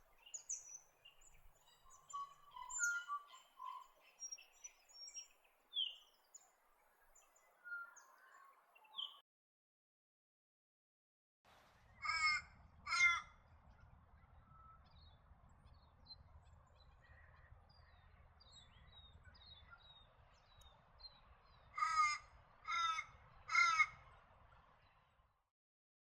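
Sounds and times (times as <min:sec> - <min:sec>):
small birds chirping: 0:00.0 - 0:09.2
large bird rasping calls: 0:21.8 - 0:23.9.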